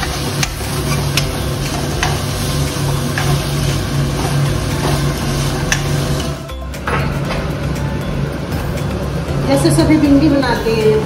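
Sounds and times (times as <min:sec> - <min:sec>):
food sizzling in oil: 0:00.0 - 0:06.5.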